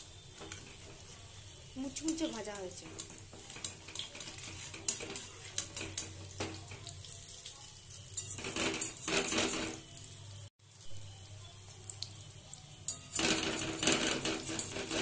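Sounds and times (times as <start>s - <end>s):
scraping against pan: 0.0s - 7.0s, 7.9s - 9.9s, 12.9s - 15.0s
fritters sizzling in oil: 0.0s - 15.0s.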